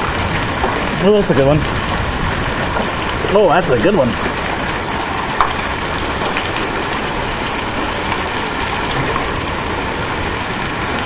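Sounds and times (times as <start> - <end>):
hail pelting down: 0.0 - 11.0.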